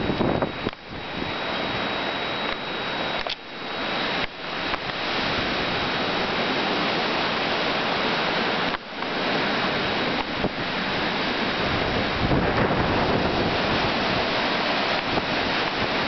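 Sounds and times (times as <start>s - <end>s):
strong wind buffeting microphone: 0.0s - 2.2s, 9.2s - 16.0s.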